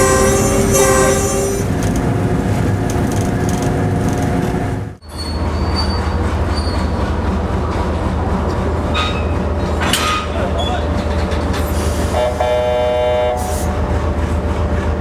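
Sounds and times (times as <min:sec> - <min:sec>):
train horn: 0:00.0 - 0:02.0, 0:12.0 - 0:14.0
train running noise: 0:00.0 - 0:15.0.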